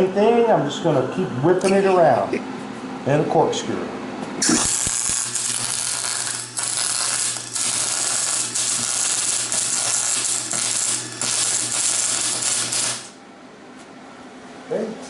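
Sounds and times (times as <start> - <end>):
steady low hum: 0.0 - 15.0
welding arc crackling and sizzling: 4.4 - 13.2.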